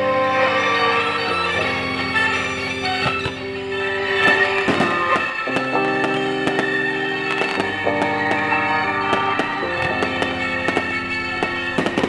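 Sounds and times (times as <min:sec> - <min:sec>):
music with held chords: 0:00.0 - 0:12.0
fireworks bursting: 0:00.3 - 0:12.0.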